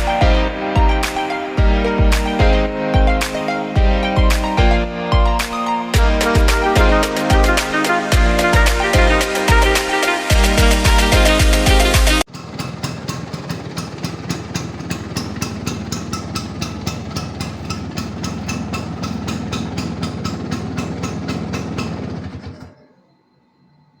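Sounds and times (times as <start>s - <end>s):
scooter engine idling: 6.0s - 22.8s.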